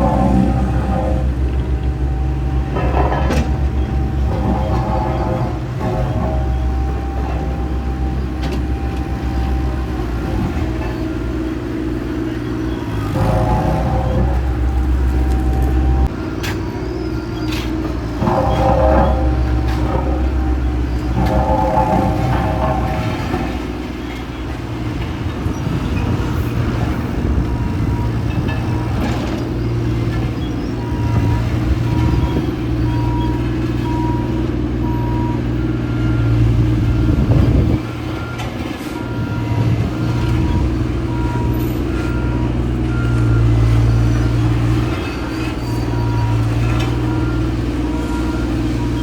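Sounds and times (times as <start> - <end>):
heavy diesel machinery running: 0.0 - 49.0
backup alarms beeping: 25.5 - 44.3.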